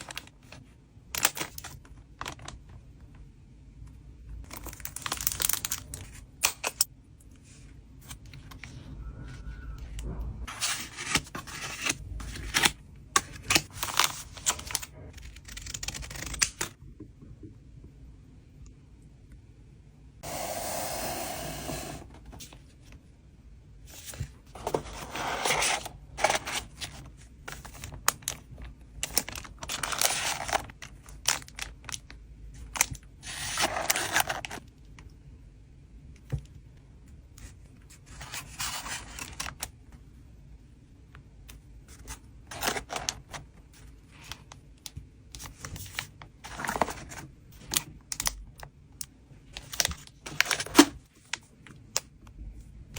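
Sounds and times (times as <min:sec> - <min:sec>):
plastic rustling and tearing: 0:24.9 - 0:34.6.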